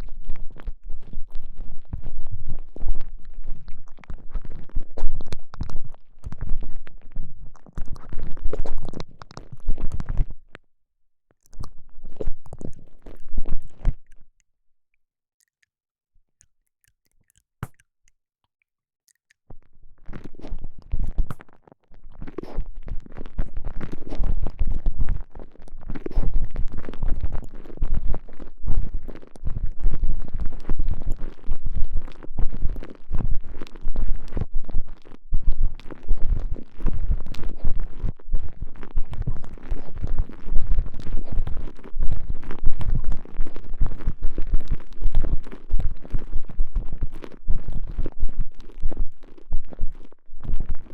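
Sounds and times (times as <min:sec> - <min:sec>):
crackling squishing handling noise: 0:11.3 - 0:14.4
click: 0:13.8 - 0:15.8, 0:16.4 - 0:19.4.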